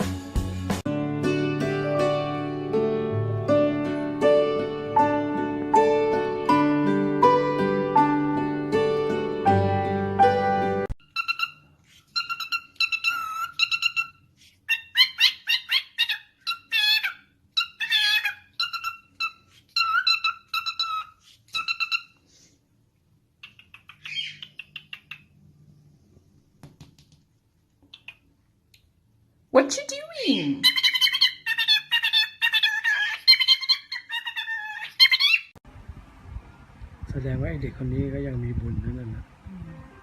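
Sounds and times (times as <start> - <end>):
parrot chirping: 11.0 - 22.2, 23.4 - 25.5, 27.8 - 28.8, 30.1 - 35.6.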